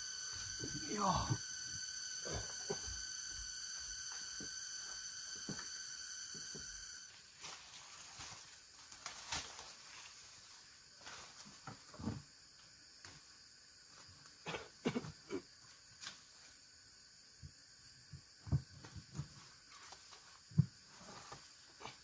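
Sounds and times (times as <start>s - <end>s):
insects trilling: 0.0s - 22.0s
light knocks and thuds: 18.4s - 19.5s.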